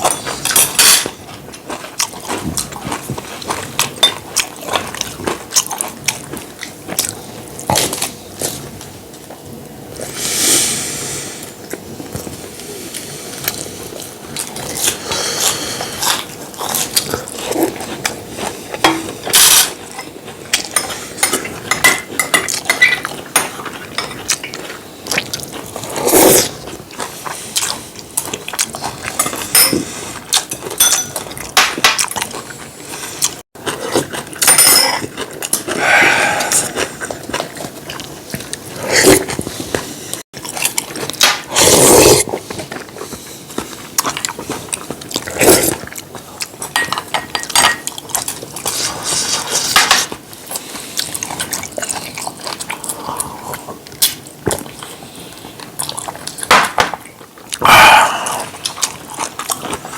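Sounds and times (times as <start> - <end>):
utensils clinking on dishes: 0.0 - 1.8, 3.8 - 5.0, 18.8 - 25.3, 28.8 - 32.5, 33.1 - 35.7, 46.6 - 50.2
eating noises: 0.0 - 59.9.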